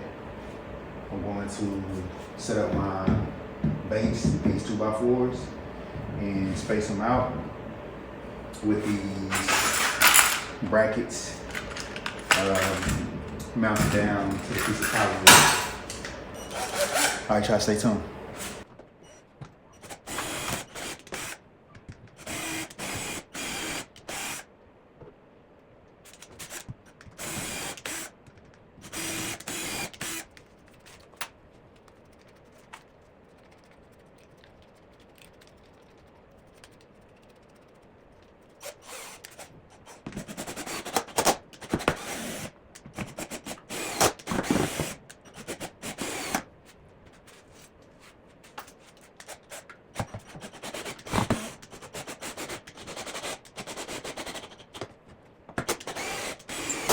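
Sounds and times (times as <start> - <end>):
power drill driving screws into wood: 9.3 - 10.6, 13.8 - 17.4, 19.8 - 21.4, 22.2 - 24.5, 26.2 - 28.2, 28.8 - 30.3, 38.6 - 46.5, 49.2 - 54.7, 55.6 - 56.9.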